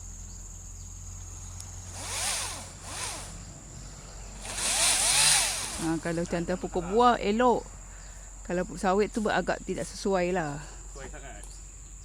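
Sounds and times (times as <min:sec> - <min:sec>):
chainsaw motor whirring: 0:01.6 - 0:06.3.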